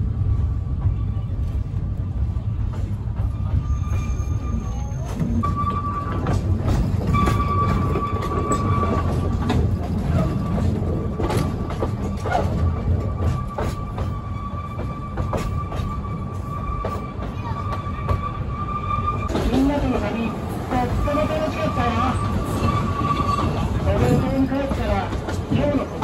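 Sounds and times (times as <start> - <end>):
train coach rumbling: 0.0 - 26.0
high wheel squeal: 3.2 - 6.3, 7.0 - 9.3, 12.0 - 19.4, 21.6 - 23.8.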